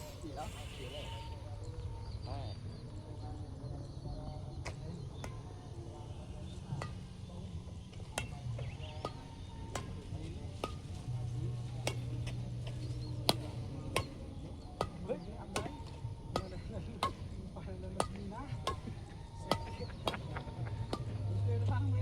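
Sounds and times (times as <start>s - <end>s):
racket hitting shuttlecock: 8.0s - 21.3s.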